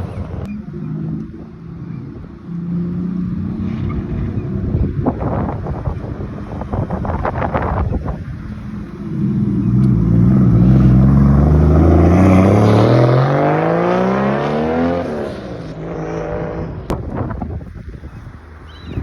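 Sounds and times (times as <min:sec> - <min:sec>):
car accelerating hard: 0:08.5 - 0:17.0.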